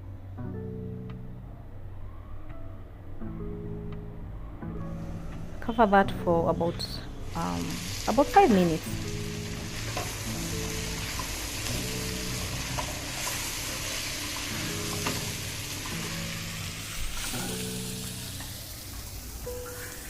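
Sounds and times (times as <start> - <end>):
background music: 0.0 - 20.0
vegetables sizzling in a pot: 7.2 - 20.0.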